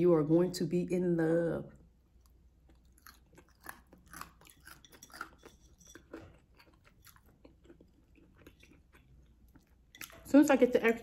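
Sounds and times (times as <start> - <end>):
chewing crunchy food: 2.0 - 10.3.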